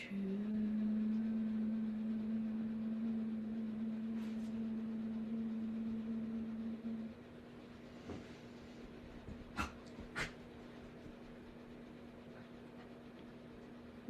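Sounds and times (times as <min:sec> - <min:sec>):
steady low tone: 0:00.0 - 0:09.2.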